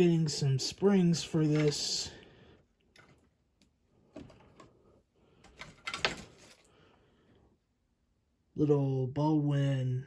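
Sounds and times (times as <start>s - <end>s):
rattle of clicks and scrapes: 1.4s - 2.1s, 5.4s - 6.7s.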